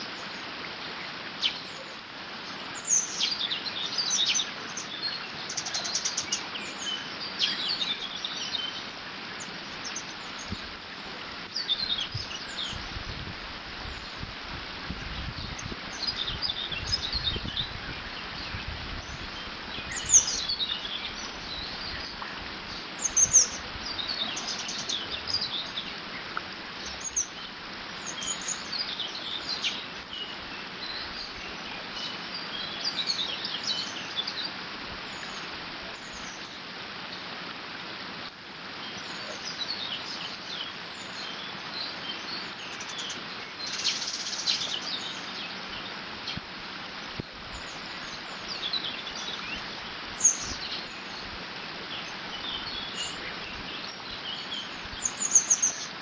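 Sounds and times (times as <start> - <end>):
songbirds chirping and singing: 15.3 - 36.6, 47.2 - 56.0
water rushing through a dam: 19.2 - 56.0.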